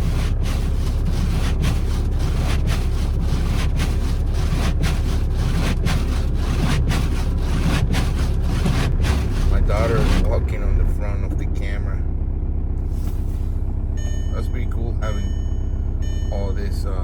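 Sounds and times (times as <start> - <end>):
windshield wipers sweeping: 0.0 - 10.3
diesel engine idling: 0.0 - 17.0.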